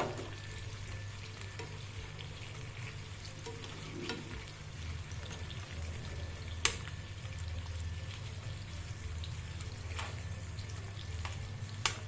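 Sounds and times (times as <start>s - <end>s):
chicken sizzling in a pan: 0.0s - 12.0s
spatula clicking against pan: 11.8s - 12.0s.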